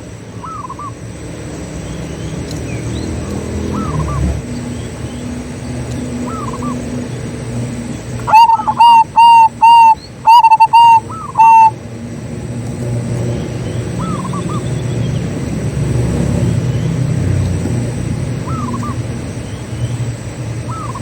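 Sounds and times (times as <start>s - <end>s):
dove cooing: 8.2s - 11.8s
faint curling dove call: 8.2s - 11.8s.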